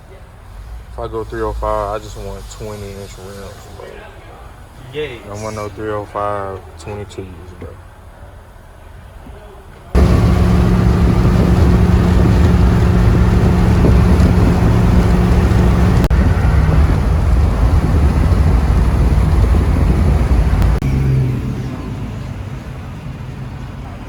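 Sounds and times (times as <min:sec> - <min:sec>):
vehicle engine running: 0:10.0 - 0:22.6
road noise: 0:10.0 - 0:24.0.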